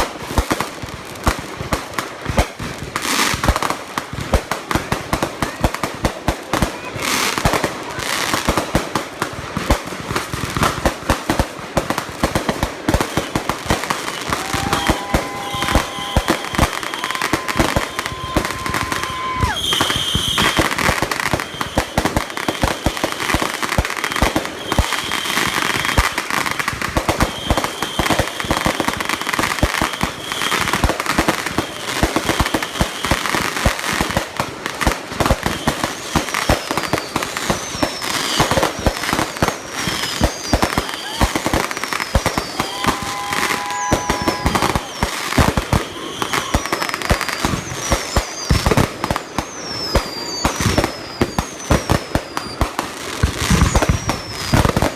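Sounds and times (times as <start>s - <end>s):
fireworks bangs and crackling: 0.0s - 54.9s
firework whistling: 13.0s - 34.2s, 34.8s - 54.9s.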